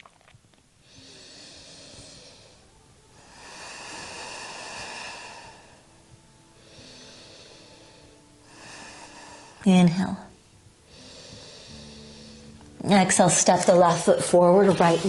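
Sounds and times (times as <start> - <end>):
person breathing slowly: 0.8 - 9.7, 10.8 - 12.8.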